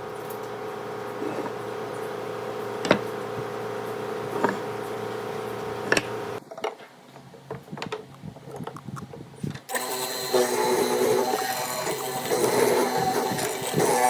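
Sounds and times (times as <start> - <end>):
small power tool running: 9.7 - 14.0.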